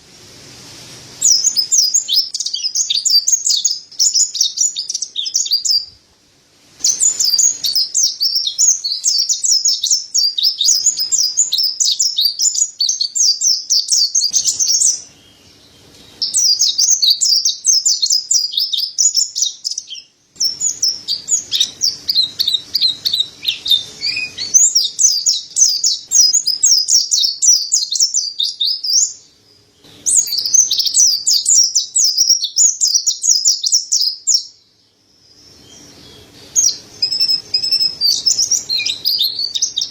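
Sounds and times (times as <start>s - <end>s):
bird twittering song: 1.2s - 6.0s, 6.8s - 39.9s.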